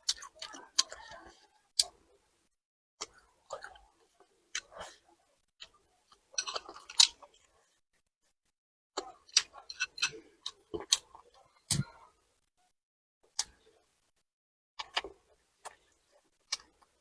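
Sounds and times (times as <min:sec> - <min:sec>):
chewing and crunching food: 0:00.0 - 0:02.1, 0:03.0 - 0:07.8, 0:09.0 - 0:12.2, 0:14.8 - 0:17.0.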